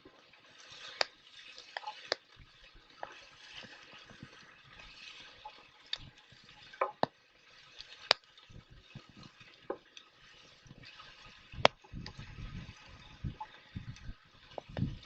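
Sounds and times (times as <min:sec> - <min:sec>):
campfire crackling and popping: 0:07.8 - 0:09.1, 0:11.6 - 0:12.2.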